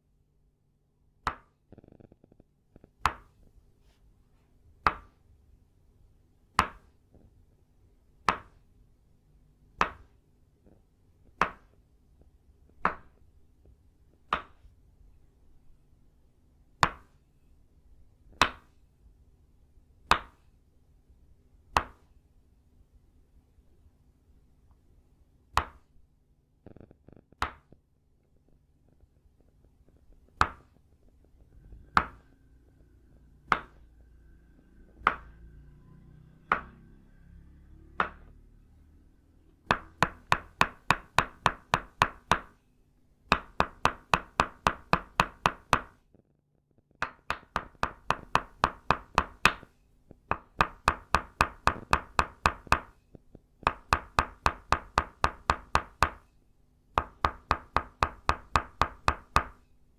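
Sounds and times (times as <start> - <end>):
wooden mallet knocking on peg: 31.9 - 32.3, 33.5 - 33.8.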